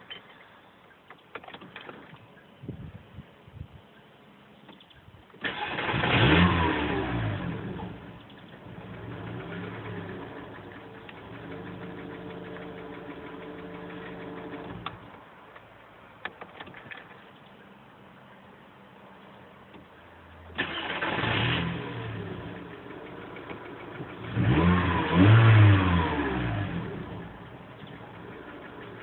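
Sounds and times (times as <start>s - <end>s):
car engine starting and idling: 5.4s - 17.4s, 19.6s - 29.0s.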